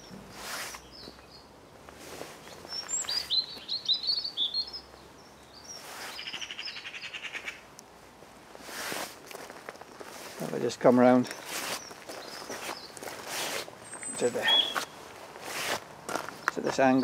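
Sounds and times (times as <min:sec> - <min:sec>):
songbird chirping and trilling: 0:00.0 - 0:01.5, 0:02.4 - 0:07.7, 0:11.0 - 0:15.0.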